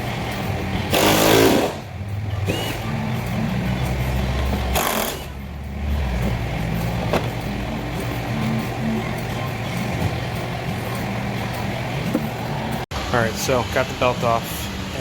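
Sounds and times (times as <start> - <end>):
loud burst of mechanical noise: 0.9 - 1.9, 2.5 - 3.0
low machine hum: 1.8 - 15.0.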